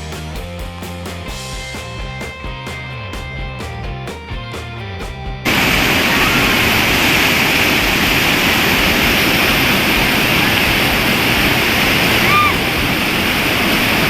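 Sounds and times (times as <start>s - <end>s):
river whitewater rushing: 5.5s - 14.0s.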